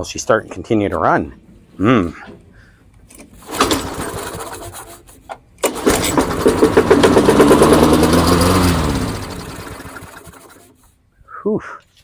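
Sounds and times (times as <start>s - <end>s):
lawnmower engine starting and dying: 3.1s - 10.8s.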